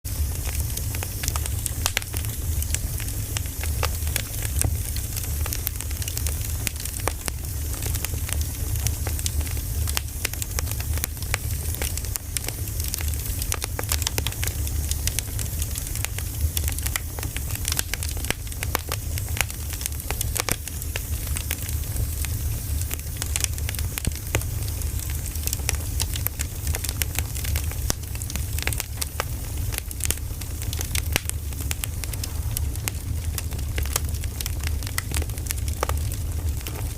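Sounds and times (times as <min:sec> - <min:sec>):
burning logs crackling: 0:00.1 - 0:36.9
low rumble: 0:30.1 - 0:35.2.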